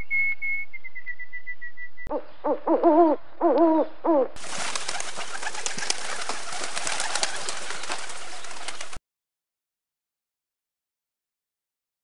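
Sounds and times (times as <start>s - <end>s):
bird calls: 0.0s - 9.0s.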